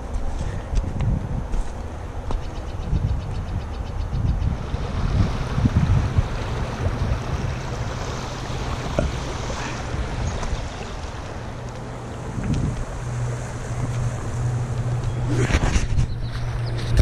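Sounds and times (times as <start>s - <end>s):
wind buffeting microphone: 0.0s - 17.0s
river water rushing: 4.4s - 17.0s.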